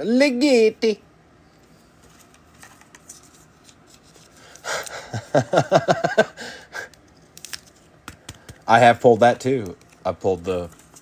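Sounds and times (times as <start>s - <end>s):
person laughing: 4.6s - 6.9s
trading cards clicking: 6.8s - 11.0s.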